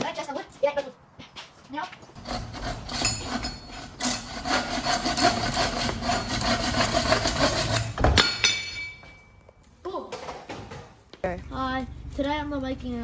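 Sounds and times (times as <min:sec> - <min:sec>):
bow saw cutting wood: 0:02.2 - 0:08.0.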